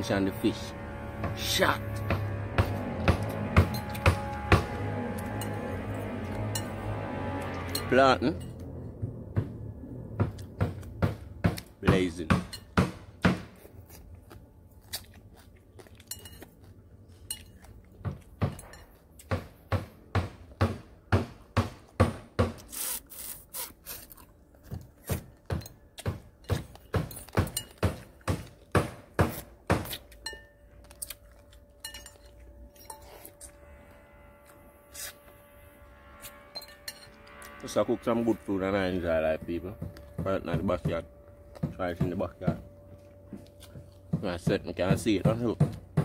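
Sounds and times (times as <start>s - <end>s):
person chewing crispy food: 13.5s - 19.3s, 22.6s - 33.6s.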